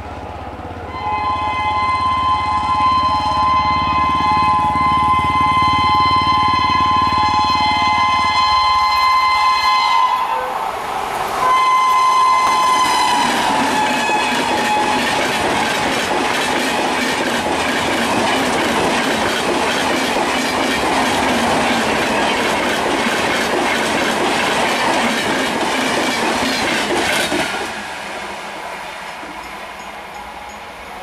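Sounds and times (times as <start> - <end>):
train wheels clattering: 11.2 - 30.9.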